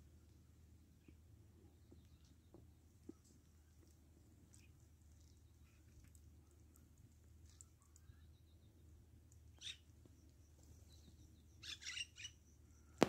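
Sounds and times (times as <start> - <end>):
faint bird chirps: 7.5 - 13.0.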